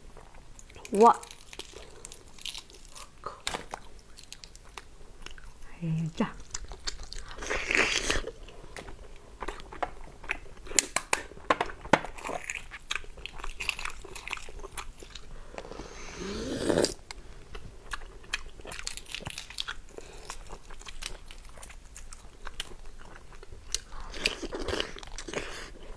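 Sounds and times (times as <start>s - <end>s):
wet chewing: 0.2s - 5.6s, 6.3s - 11.3s, 12.1s - 15.7s, 17.4s - 25.9s
slurping: 15.6s - 17.0s.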